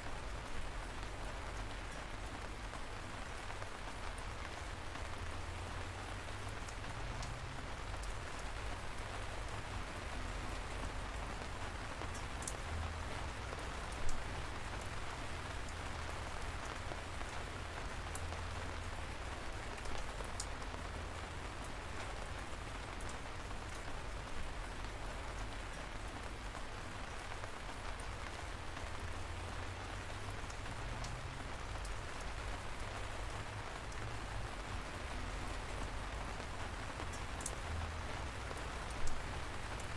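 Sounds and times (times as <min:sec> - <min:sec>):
light rain pattering: 0:00.0 - 0:39.9.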